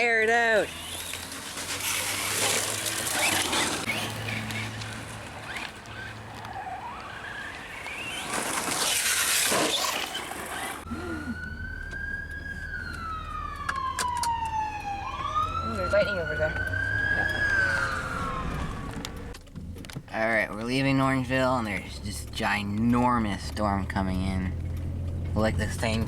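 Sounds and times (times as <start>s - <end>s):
emergency vehicle siren wailing: 0.7s - 9.0s, 10.8s - 19.4s.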